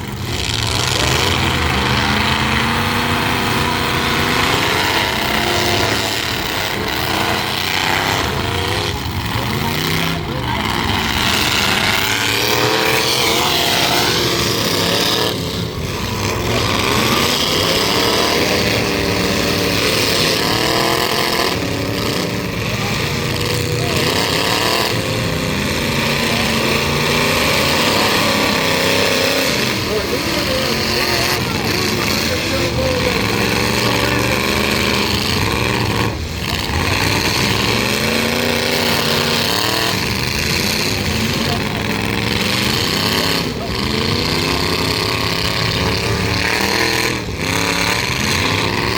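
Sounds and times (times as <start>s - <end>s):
truck engines revving: 0.0s - 48.9s.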